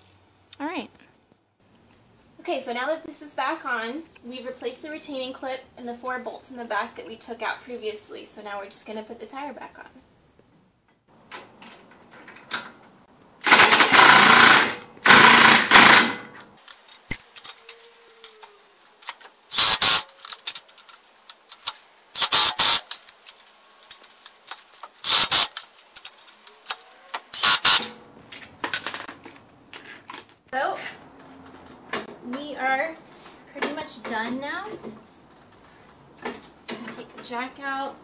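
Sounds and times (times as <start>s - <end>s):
impact wrench bursts: 13.4s - 17.6s, 19.0s - 28.0s.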